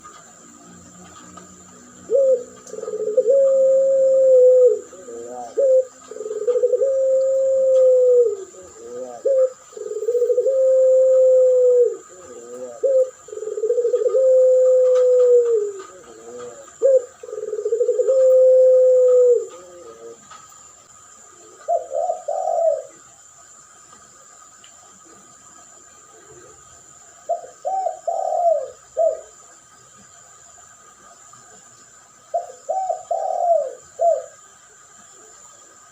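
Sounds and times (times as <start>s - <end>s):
dove cooing: 0.0s - 20.4s, 21.1s - 23.1s, 27.2s - 29.4s, 32.3s - 35.8s.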